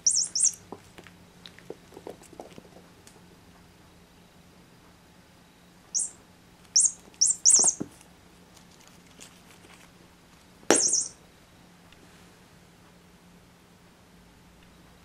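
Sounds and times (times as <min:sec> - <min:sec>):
toy bird chirping: 0:00.0 - 0:00.6, 0:06.0 - 0:07.8, 0:10.7 - 0:11.2.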